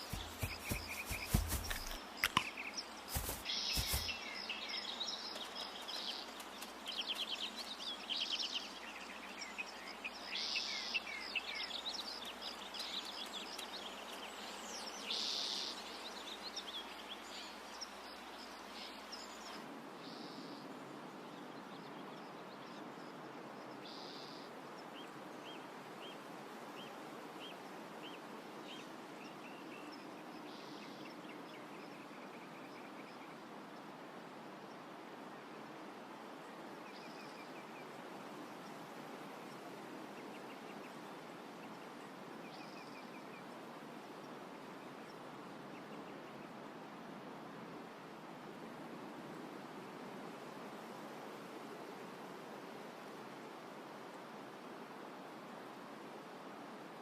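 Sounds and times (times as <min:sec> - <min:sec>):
single bird chirping: 0:00.0 - 0:04.4
birds chirping and trilling: 0:00.0 - 0:05.4
steady soft hiss: 0:00.0 - 0:08.0.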